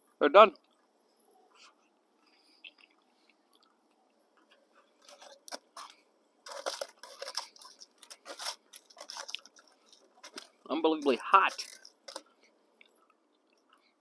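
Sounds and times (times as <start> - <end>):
crinkling and rustling of food: 1.5 - 14.0.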